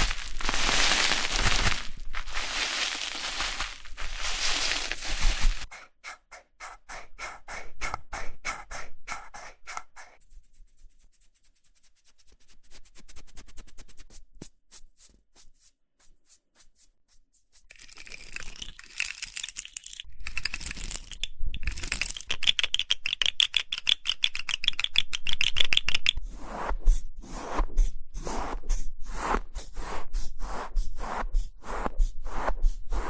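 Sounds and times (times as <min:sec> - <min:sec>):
crackling crinkling rustle: 0:00.0 - 0:05.7.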